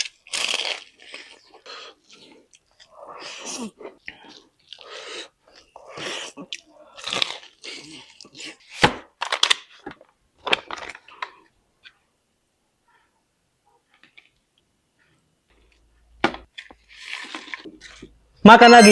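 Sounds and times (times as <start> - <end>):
crunchy chewing of fried chicken: 0.0 - 9.8, 16.5 - 18.2.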